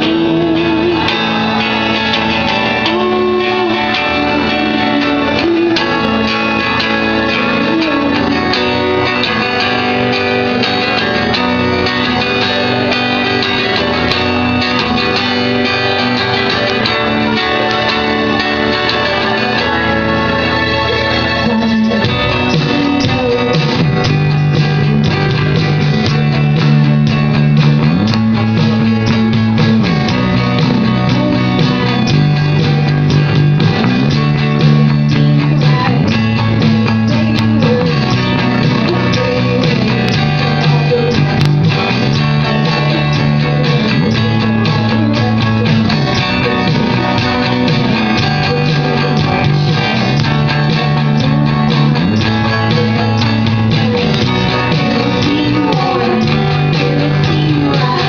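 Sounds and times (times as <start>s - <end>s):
bass line: 0.0s - 58.0s
rock band guitars: 0.0s - 58.0s.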